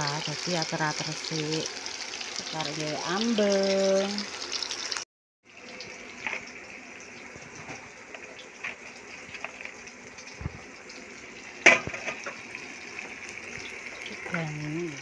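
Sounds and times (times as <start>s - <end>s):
tofu sizzling in hot oil: 0.0s - 15.0s
small crackles and knocks: 6.1s - 14.4s.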